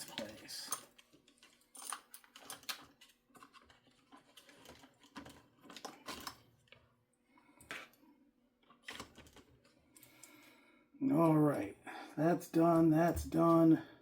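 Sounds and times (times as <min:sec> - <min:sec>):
small tools clattering on workbench: 0:00.0 - 0:06.5.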